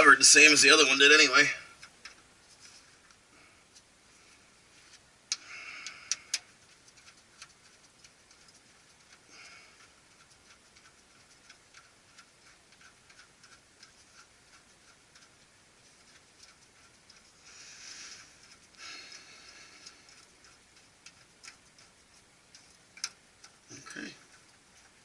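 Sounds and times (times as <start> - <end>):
rustling: 0.4 - 25.0
faint even ticking: 5.3 - 25.0.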